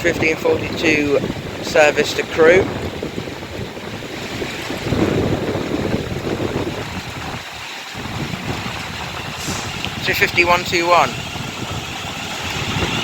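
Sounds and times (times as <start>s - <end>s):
wind buffeting microphone: 0.0s - 13.0s
train wheels and traction rumble: 2.6s - 13.0s.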